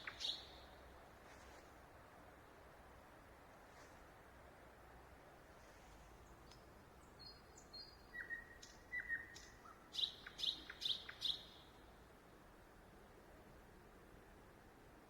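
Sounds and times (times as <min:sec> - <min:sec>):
songbird singing: 0:00.0 - 0:00.8, 0:06.2 - 0:11.9.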